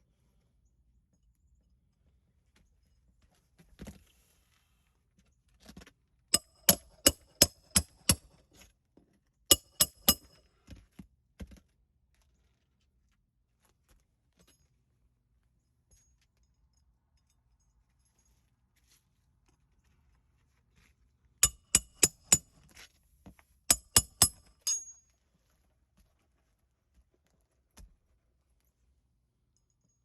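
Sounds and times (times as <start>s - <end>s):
hammer blows with metallic ring: 6.4s - 8.4s, 9.5s - 10.4s, 21.4s - 22.6s, 23.7s - 25.0s.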